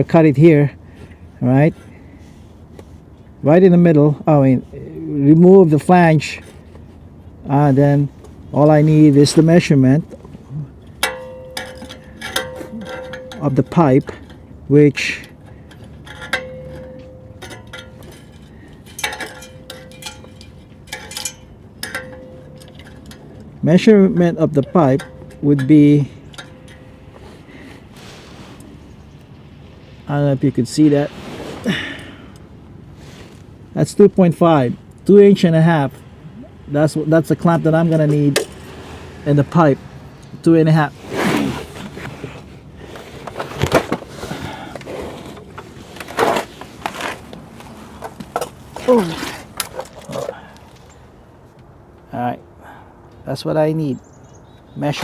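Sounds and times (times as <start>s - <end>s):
metal clinks and taps: 10.8s - 14.5s, 15.2s - 23.6s, 24.6s - 27.3s
metal ringing tone: 10.9s - 14.5s, 15.6s - 27.2s
short rushing scrape: 29.9s - 32.0s, 40.9s - 42.3s.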